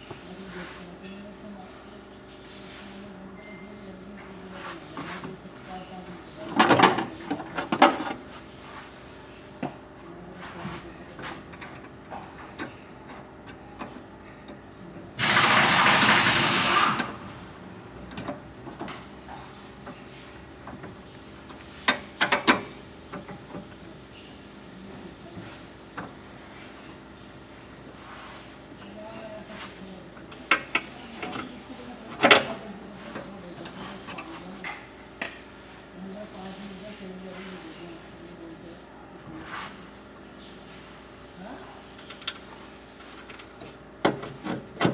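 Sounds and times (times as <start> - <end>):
loud steady hiss: 15.2 - 17.1.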